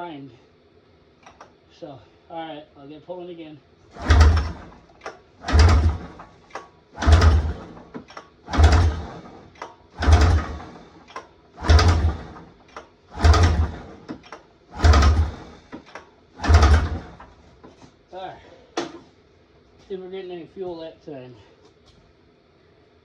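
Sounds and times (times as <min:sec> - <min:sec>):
snowmobile recoil starter pulls: 0:03.9 - 0:17.9.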